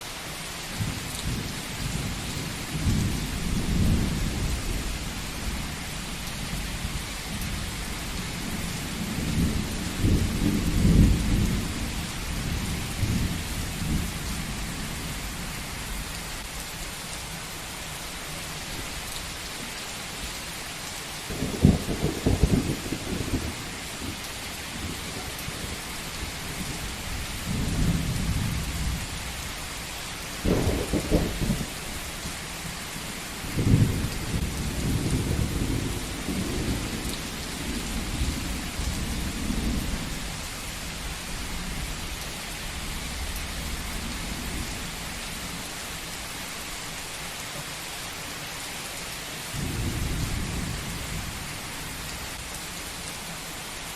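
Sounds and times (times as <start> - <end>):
heavy rain hissing: 0.0 - 53.9
rolling thunder rumbling: 0.8 - 15.3, 21.3 - 29.4, 30.4 - 31.8, 33.4 - 42.0
crackling thunder clap: 8.2 - 14.6, 21.3 - 24.2, 30.4 - 31.8, 33.5 - 40.4.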